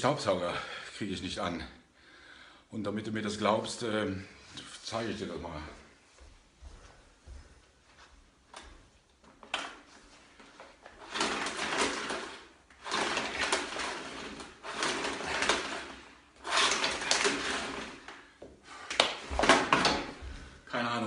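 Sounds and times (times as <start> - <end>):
vacuum cleaner rasping bursts: 11.0 - 20.2.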